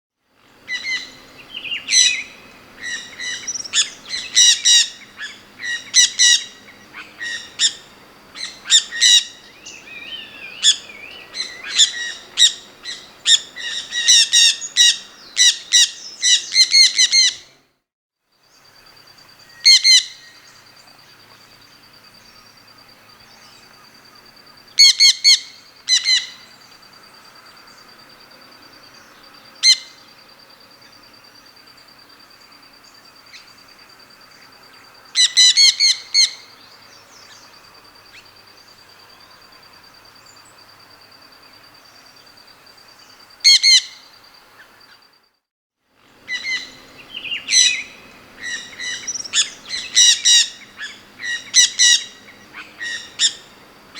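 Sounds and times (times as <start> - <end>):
bird chirping: 0.5 - 17.4, 46.0 - 53.9.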